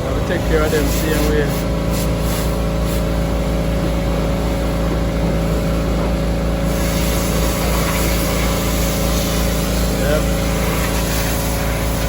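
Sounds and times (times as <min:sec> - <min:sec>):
low motor drone: 0:00.0 - 0:12.0
bright hiss: 0:06.6 - 0:12.0.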